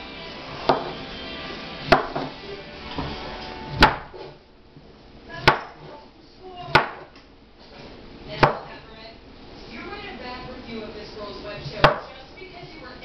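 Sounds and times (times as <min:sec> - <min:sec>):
knife chopping on cutting board: 0:00.6 - 0:01.0, 0:01.9 - 0:02.4, 0:03.8 - 0:04.4, 0:05.4 - 0:06.0, 0:06.7 - 0:07.2, 0:08.4 - 0:08.7, 0:11.8 - 0:12.1.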